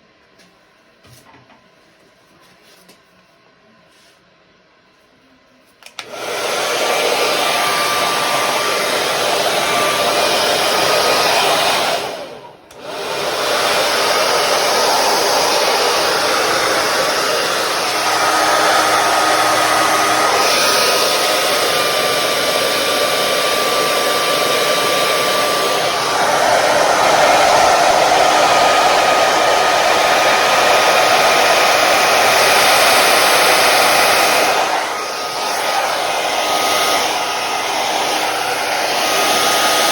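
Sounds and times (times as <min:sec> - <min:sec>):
hair dryer blowing: 0:05.8 - 0:39.9.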